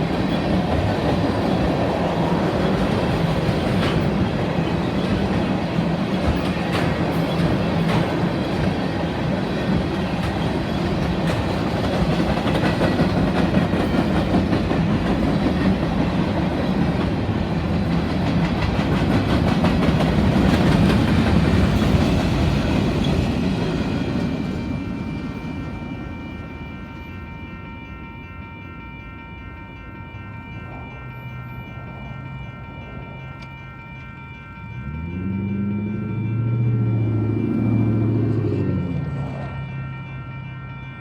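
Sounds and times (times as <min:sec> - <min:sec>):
freight train wheels clattering: 0:00.0 - 0:27.6.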